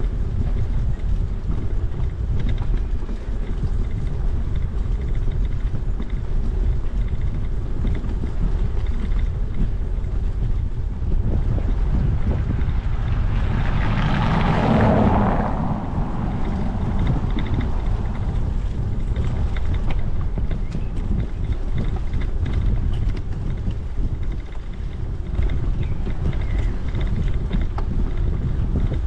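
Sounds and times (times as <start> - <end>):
low rumble: 0.0 - 29.0
vehicle tyre noise passing: 0.0 - 29.0
wind buffeting the microphone: 0.0 - 29.0.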